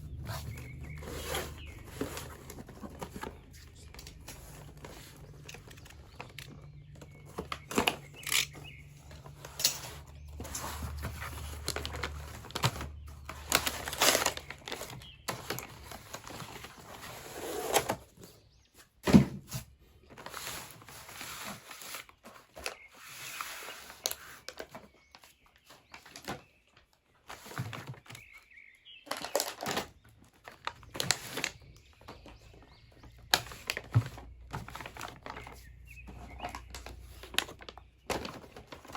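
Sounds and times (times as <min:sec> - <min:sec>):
toy packaging rustling: 0:00.0 - 0:18.0, 0:27.2 - 0:38.9.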